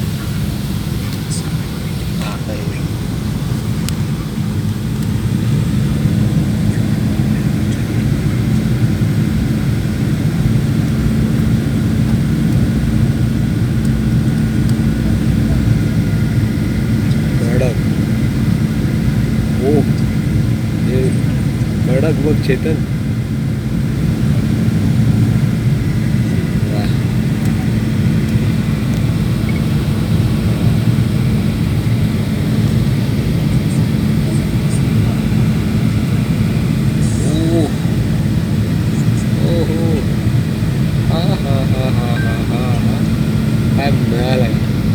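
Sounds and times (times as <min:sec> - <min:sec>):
aircraft engine drone: 0:00.0 - 0:44.9
steady hum: 0:00.0 - 0:44.9.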